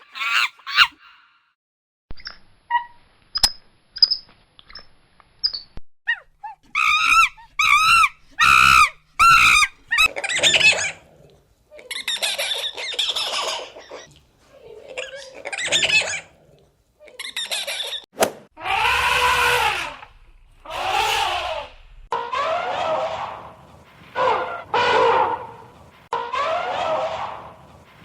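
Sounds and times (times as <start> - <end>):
harsh chattering cries: 0.0 - 1.0, 6.5 - 11.0, 18.6 - 20.1, 20.7 - 23.2
shrill arching animal calls: 0.0 - 1.4, 6.1 - 11.1, 18.6 - 23.6, 24.2 - 27.7
animal high chirps: 2.7 - 10.9.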